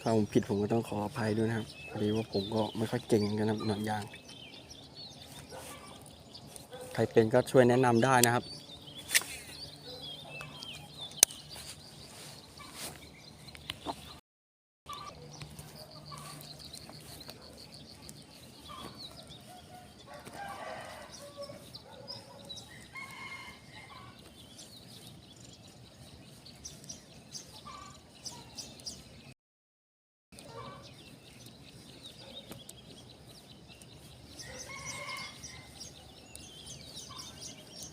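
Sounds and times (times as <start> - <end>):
chickens clucking: 0.1 - 4.2, 5.3 - 8.4, 12.4 - 13.0, 13.6 - 14.2, 14.9 - 24.4, 27.4 - 28.5, 30.4 - 31.5
sharp clicks: 8.2 - 8.4
rooster crowing: 20.1 - 21.6, 22.8 - 24.1, 34.4 - 35.8.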